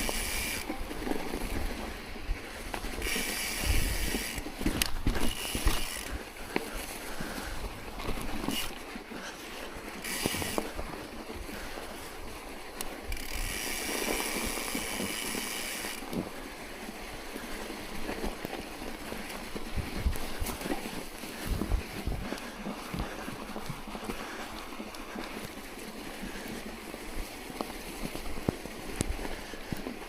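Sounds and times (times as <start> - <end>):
crunches in snow: 0.0 - 12.8, 13.5 - 30.0
wind buffeting microphone: 19.6 - 23.8.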